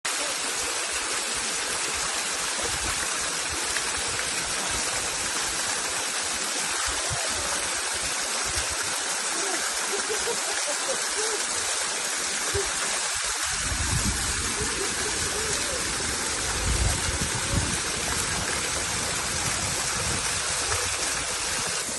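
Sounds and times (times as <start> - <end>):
stream flowing: 0.0 - 21.9.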